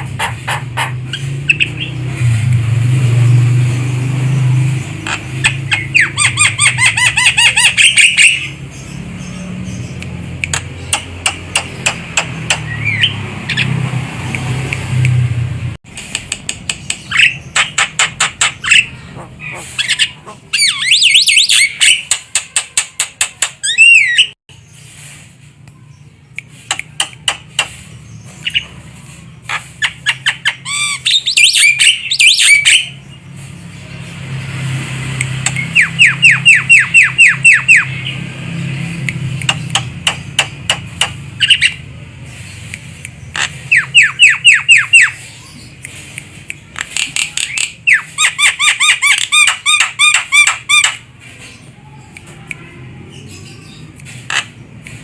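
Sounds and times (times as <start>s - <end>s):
bird squawking and chattering: 0.0s - 2.1s, 4.9s - 13.8s, 16.8s - 24.4s, 26.5s - 33.2s, 35.4s - 38.3s, 39.4s - 55.0s.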